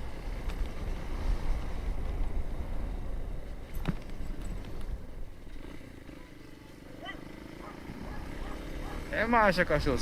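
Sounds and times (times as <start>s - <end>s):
wind buffeting microphone: 0.0s - 5.4s
motorcycle engine rumble: 0.0s - 10.0s.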